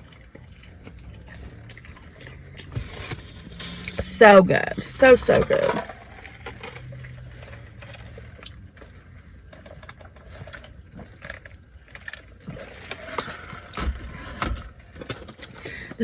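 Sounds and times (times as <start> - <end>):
chewing clicks and smacks: 0.0 - 2.8
low steady rumble: 0.0 - 16.0.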